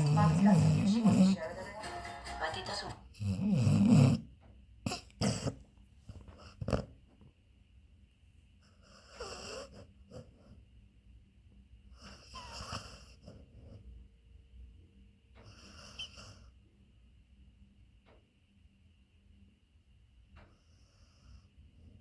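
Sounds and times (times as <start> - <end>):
dog breathing: 0.0 - 1.5, 12.0 - 13.9
dog snoring: 0.0 - 1.6, 3.1 - 4.3, 4.9 - 7.0, 8.6 - 10.6, 11.9 - 13.9, 15.3 - 16.5.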